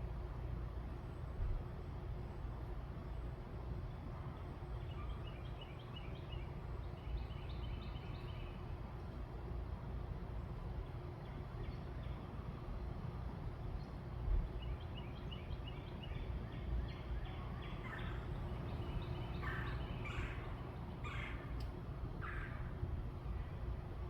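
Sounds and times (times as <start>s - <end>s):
birds chirping: 14.7s - 22.6s
harsh bird calls: 16.2s - 21.6s
steady low rumble: 16.8s - 24.0s.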